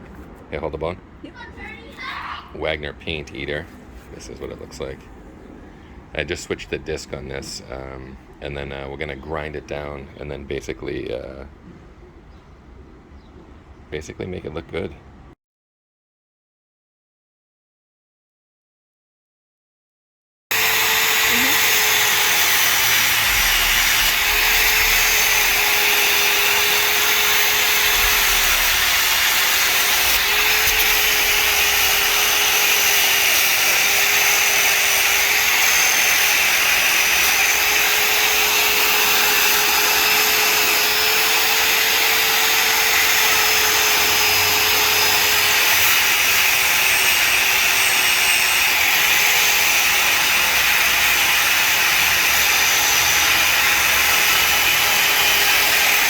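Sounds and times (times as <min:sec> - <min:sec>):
electric grinder grinding: 0:20.5 - 0:56.0.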